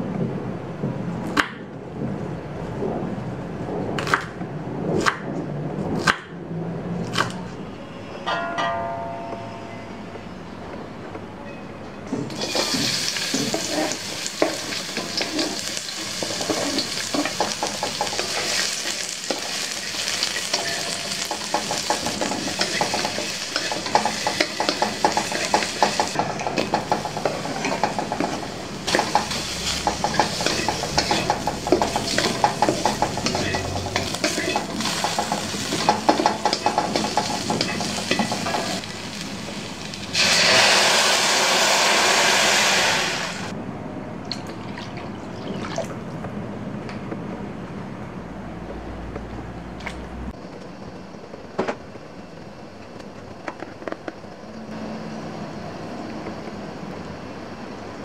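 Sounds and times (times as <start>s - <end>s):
food sizzling in hot oil: 12.3s - 43.5s
spatula scraping metal wok: 12.4s - 38.9s.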